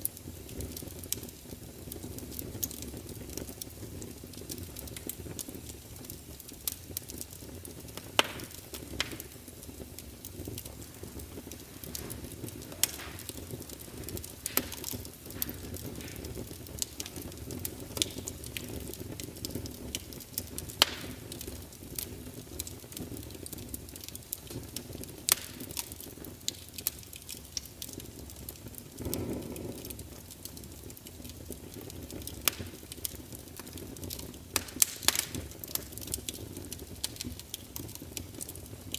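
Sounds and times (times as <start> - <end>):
low rush of flame: 0.0 - 27.2, 27.8 - 37.1
fire crackling and popping: 0.0 - 38.9.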